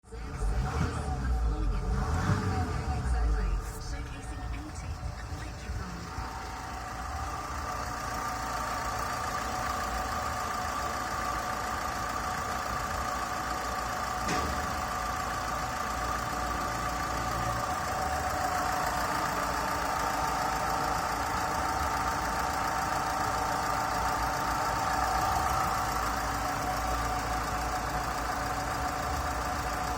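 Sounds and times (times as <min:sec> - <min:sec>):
engine idling: 0:00.0 - 0:29.9.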